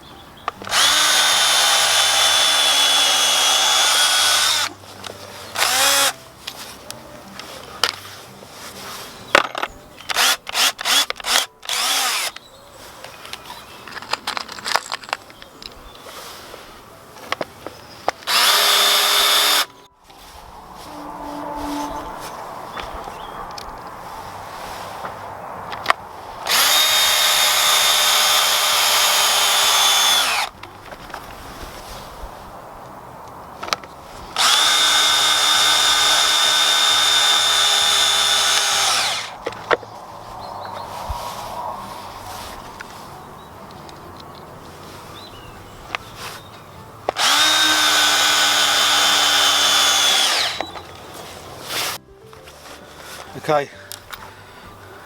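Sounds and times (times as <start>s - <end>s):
power drill drilling into wood: 0.7s - 4.8s, 5.6s - 6.2s, 10.1s - 12.4s, 18.2s - 19.7s, 26.4s - 30.6s, 34.4s - 39.4s, 47.2s - 50.8s.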